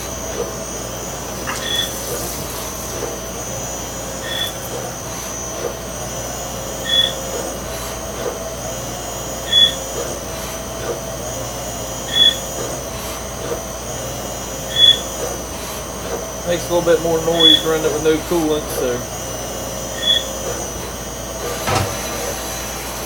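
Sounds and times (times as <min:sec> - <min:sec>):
high-pitched cutting tool squeal: 0:00.0 - 0:08.0, 0:08.7 - 0:10.5, 0:11.3 - 0:12.8, 0:14.4 - 0:15.4, 0:16.3 - 0:19.2, 0:19.8 - 0:22.4
lathe machine hum: 0:00.0 - 0:23.0.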